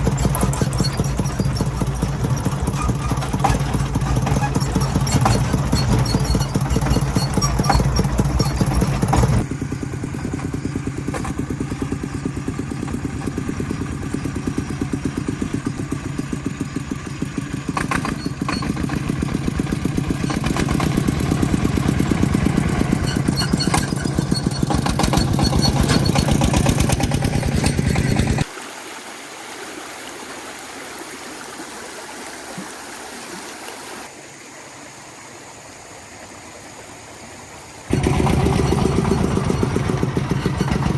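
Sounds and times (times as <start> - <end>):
vehicle engine pulsing: 0.0 - 28.4, 37.9 - 40.9.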